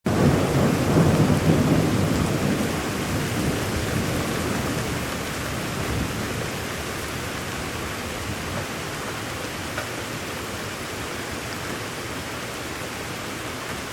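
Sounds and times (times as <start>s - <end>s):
thunder rumble: 0.1s - 8.7s
steady rain falling: 0.1s - 13.9s.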